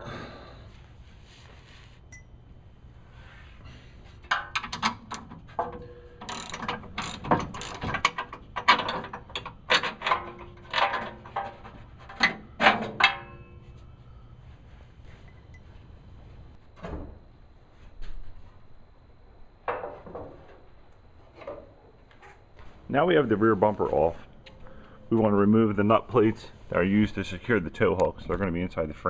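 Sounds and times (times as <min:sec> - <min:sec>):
ratchet wrench clicking: 0:06.2 - 0:08.8.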